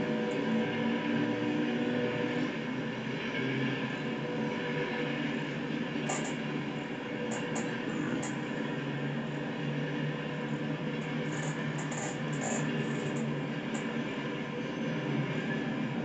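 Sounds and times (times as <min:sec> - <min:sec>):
wheels squeaking: 0:06.1 - 0:06.4, 0:11.1 - 0:13.8.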